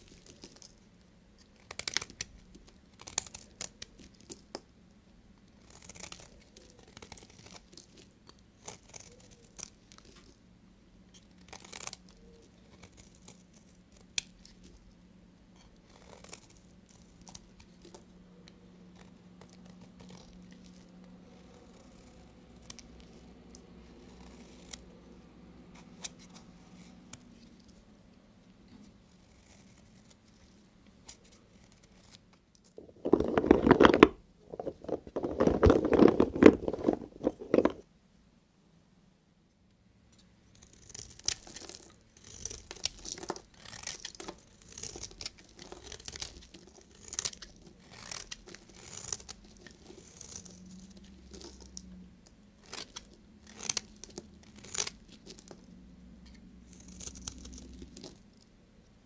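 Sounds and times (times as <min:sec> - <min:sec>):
knife crunching through soap: 0:00.0 - 0:00.8, 0:01.4 - 0:04.6, 0:05.6 - 0:10.3, 0:11.1 - 0:14.9, 0:15.6 - 0:18.1, 0:19.0 - 0:24.9, 0:32.8 - 0:37.8, 0:40.6 - 0:51.9, 0:52.6 - 0:55.7, 0:56.3 - 0:58.3.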